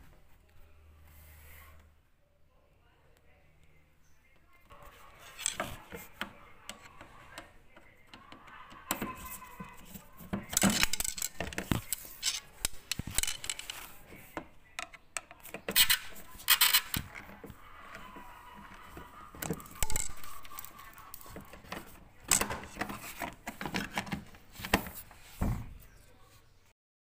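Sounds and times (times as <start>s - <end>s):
scraping and rustling: 4.7s - 7.4s, 8.9s - 14.4s, 15.4s - 26.4s
hard parts clicking and knocking: 5.2s - 25.6s.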